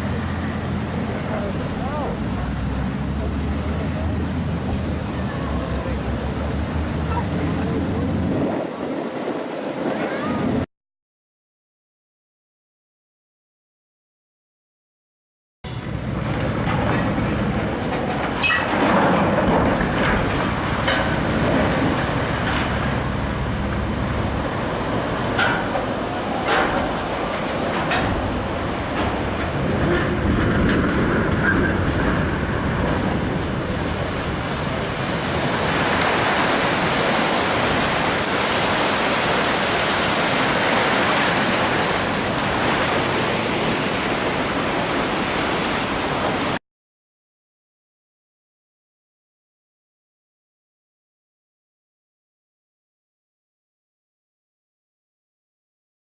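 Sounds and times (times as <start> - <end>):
water rushing and hull rumble: 0.0 - 10.7, 15.7 - 46.6.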